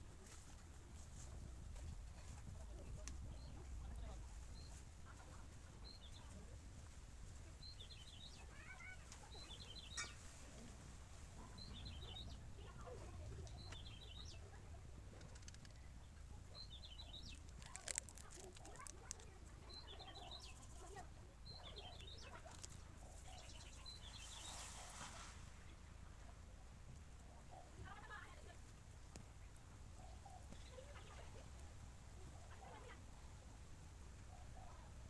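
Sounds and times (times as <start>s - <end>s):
small bird chirping: 7.6s - 10.4s, 15.2s - 24.6s.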